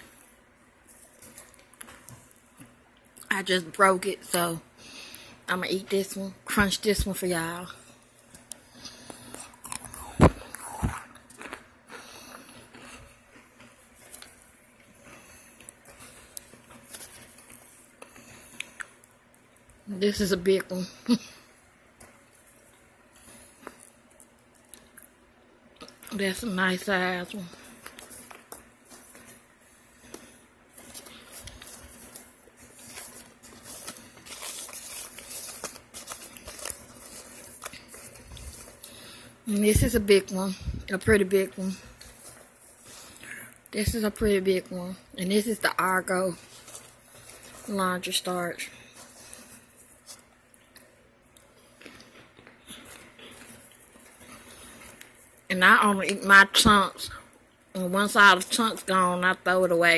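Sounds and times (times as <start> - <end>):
chewing crunch: 8.3 - 19.8, 22.0 - 25.2, 48.8 - 55.4
starch chunks clicking and rustling: 30.0 - 39.2.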